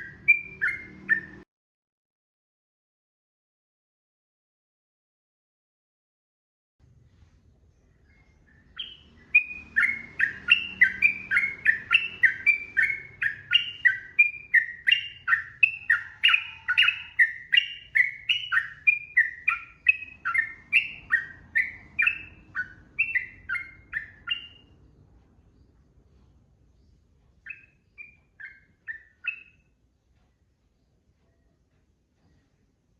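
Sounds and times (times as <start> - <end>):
bird singing whistled notes: 0.0 - 1.4, 7.9 - 24.8, 27.4 - 29.8.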